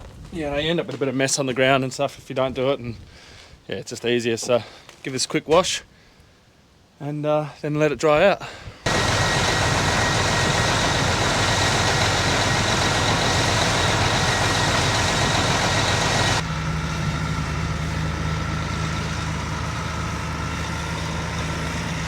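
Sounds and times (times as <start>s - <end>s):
hard water spray hissing: 8.9s - 16.4s
truck engine idling: 8.9s - 22.0s.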